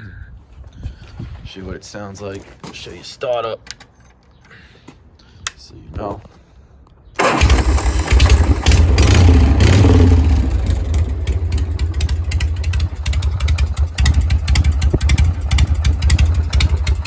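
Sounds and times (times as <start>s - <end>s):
motorcycle engine idling: 7.2s - 17.0s.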